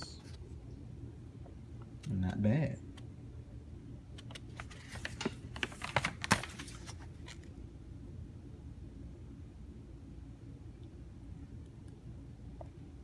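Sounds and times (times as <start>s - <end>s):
steady low hum: 0.0s - 13.0s
rustling handling noise: 4.2s - 7.6s.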